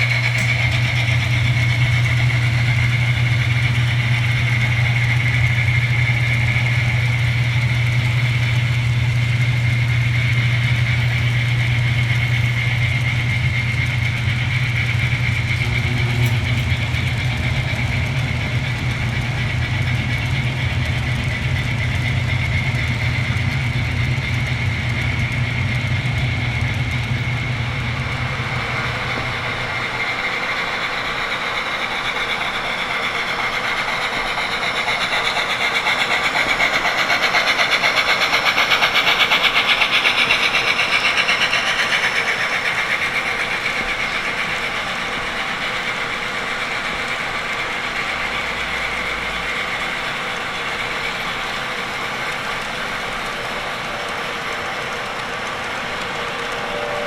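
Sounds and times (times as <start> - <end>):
low steady hum: 0.0 - 31.0
model train wheels rattling on track: 0.0 - 57.0.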